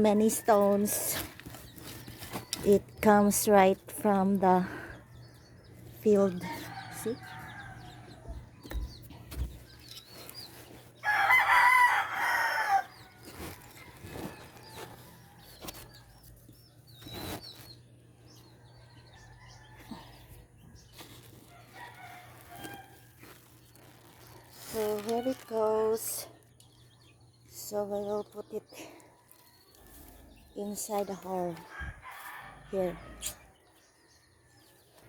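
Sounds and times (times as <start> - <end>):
small birds chirping: 0.0 - 35.0
rooster crowing: 11.0 - 12.9.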